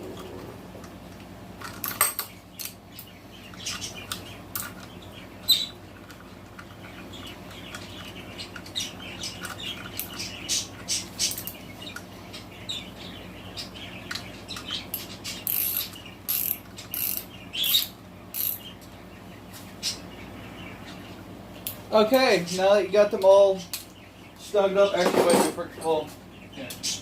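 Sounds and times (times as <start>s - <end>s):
ratchet wrench clicking: 15.4s - 18.6s.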